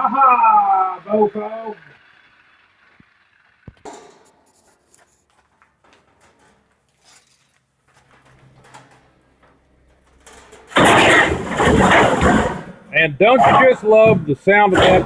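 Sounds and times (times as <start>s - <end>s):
loud harsh metal clatter: 3.8s - 4.7s, 8.0s - 15.0s
scrap metal knocks and clicks: 3.8s - 12.8s.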